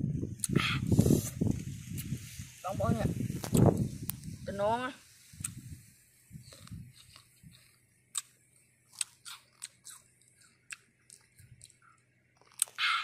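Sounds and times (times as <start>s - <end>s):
person chewing crisp fruit: 6.5s - 13.0s.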